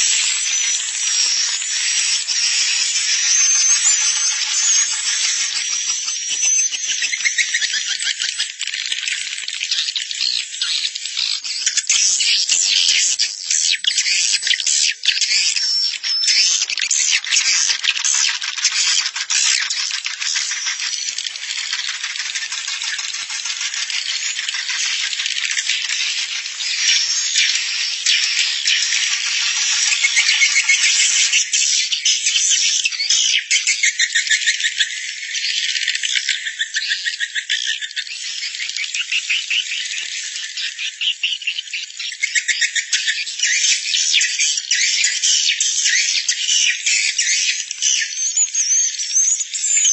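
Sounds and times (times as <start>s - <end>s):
swiftlets twittering: 0.0s - 7.3s.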